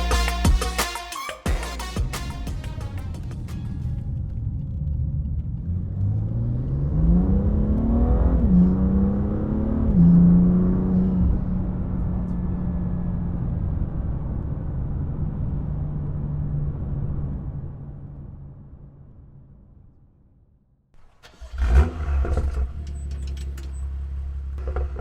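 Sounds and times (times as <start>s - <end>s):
car engine accelerating hard: 4.1s - 17.8s, 21.2s - 25.0s.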